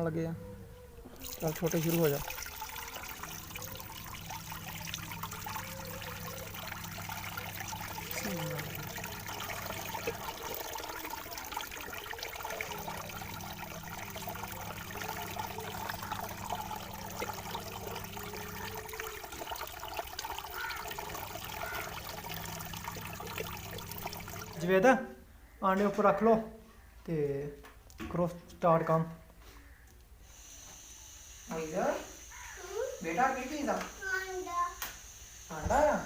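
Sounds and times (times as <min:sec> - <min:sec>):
low steady hum: 0:00.4 - 0:24.7
water running and splashing: 0:01.2 - 0:24.8.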